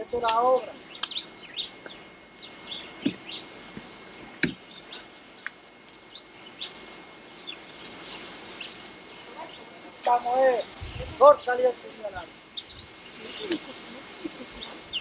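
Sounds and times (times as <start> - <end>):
small birds chirping: 0.0 - 15.0
sharp knocks: 4.4 - 4.6.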